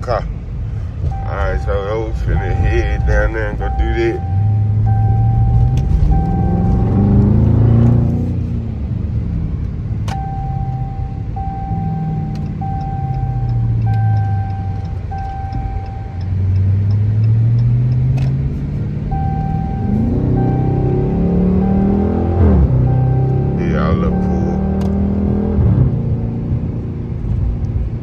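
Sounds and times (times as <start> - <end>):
car exhaust while driving: 0.0 - 28.0
in-car warning chime beeps: 1.1 - 8.3, 10.1 - 18.1, 19.0 - 25.6.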